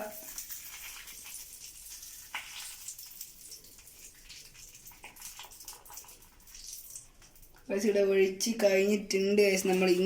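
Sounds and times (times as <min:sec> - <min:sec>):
hot wax pouring with hiss: 0:00.0 - 0:07.7.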